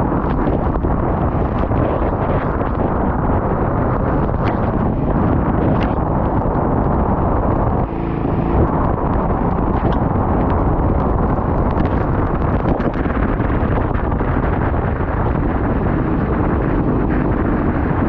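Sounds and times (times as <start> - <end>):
vehicle engine rumbling: 0.0 - 18.0
wind buffeting microphone: 0.0 - 18.0.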